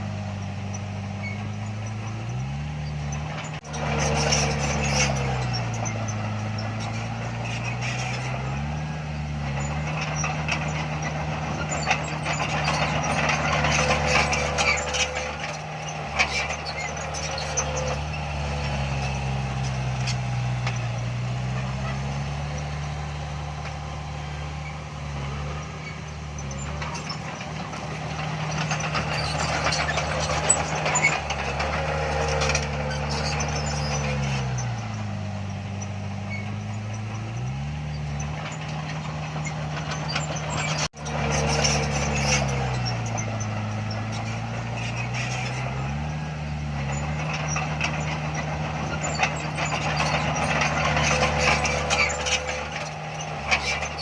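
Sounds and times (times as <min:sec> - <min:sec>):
diesel machinery engine: 0:00.0 - 0:54.0
clanking and rattling: 0:00.6 - 0:54.0.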